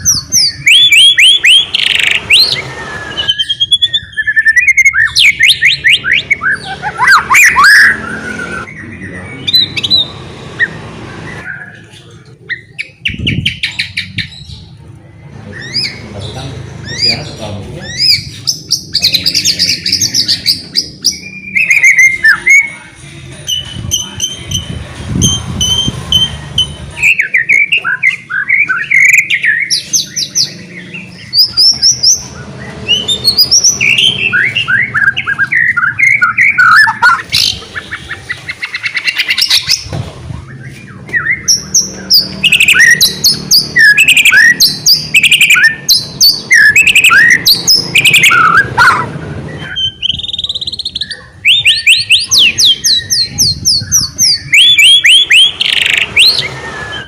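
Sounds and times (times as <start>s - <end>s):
bird singing whistled phrases: 0.1s - 10.8s, 17.8s - 22.7s, 32.8s - 39.8s, 40.5s - 57.0s.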